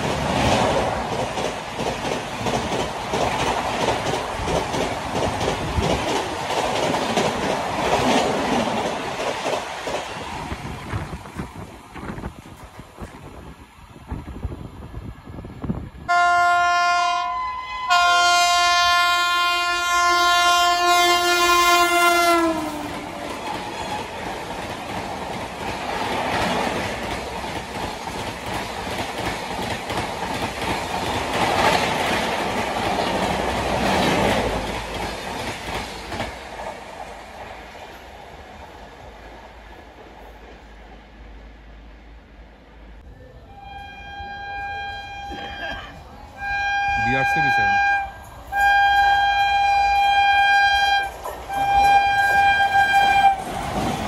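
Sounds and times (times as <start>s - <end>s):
train wheels rattling over rail joints: 0.0s - 16.0s, 20.0s - 38.2s, 47.2s - 54.0s
train horn blasts: 16.1s - 24.1s, 43.5s - 53.5s.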